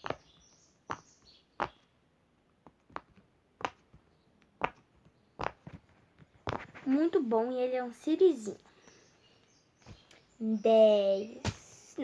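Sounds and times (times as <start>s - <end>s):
fidget toy bubbles popping: 0.0s - 0.3s, 4.6s - 5.8s.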